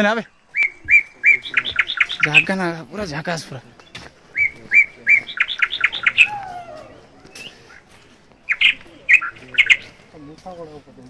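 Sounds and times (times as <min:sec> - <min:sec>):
bird calling: 0:00.2 - 0:02.7, 0:04.3 - 0:07.9, 0:08.5 - 0:10.3.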